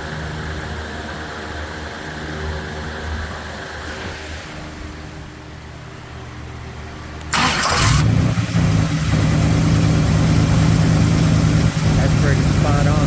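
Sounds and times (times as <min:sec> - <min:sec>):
loud rush of noise: 0:00.0 - 0:13.0
car engine running: 0:07.0 - 0:13.0.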